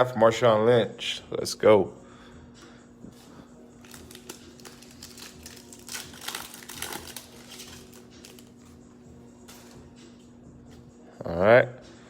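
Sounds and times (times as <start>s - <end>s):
wrapper crinkling: 3.8s - 8.6s.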